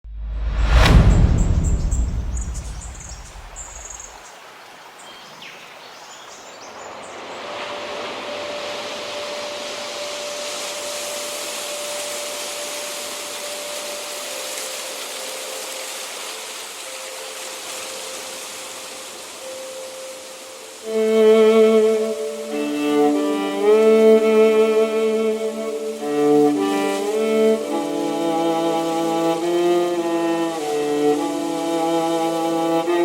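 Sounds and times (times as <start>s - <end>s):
deep boom: 0.0s - 4.0s
steady rushing noise: 0.0s - 4.1s.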